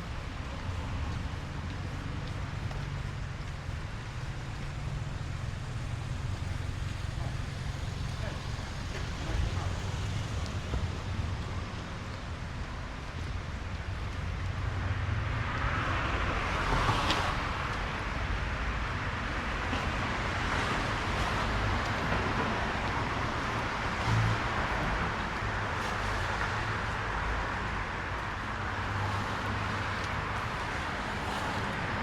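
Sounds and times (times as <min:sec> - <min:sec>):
low engine rumble: 0:00.0 - 0:14.8.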